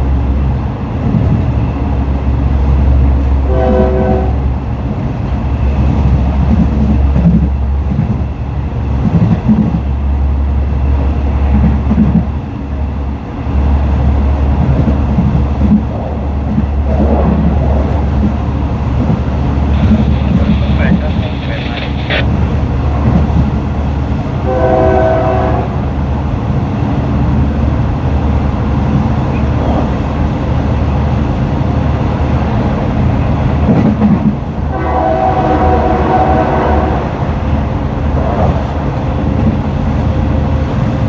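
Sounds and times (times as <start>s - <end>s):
train rumbling: 0.0s - 41.0s
train horn blast: 3.4s - 4.5s, 24.4s - 25.8s, 34.7s - 37.2s.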